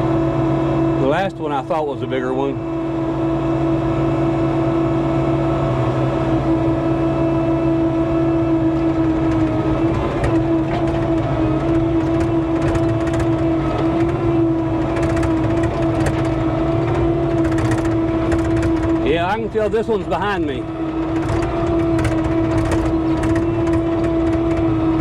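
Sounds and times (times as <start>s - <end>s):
skid steer engine running: 0.0s - 25.0s.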